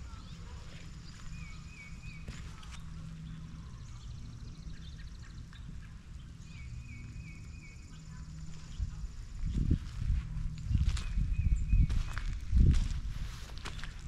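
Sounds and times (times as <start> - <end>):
bird trill: 0.0 - 9.1
low background rumble: 0.0 - 14.0.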